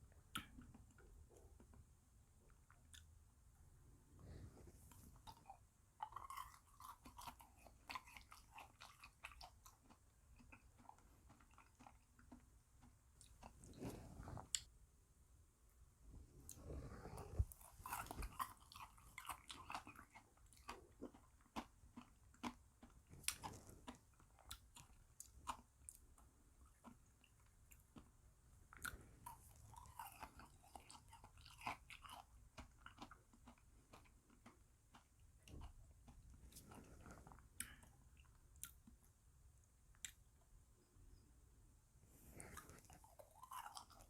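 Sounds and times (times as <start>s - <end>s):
frozen beads crunched and chewed: 17.3s - 26.1s.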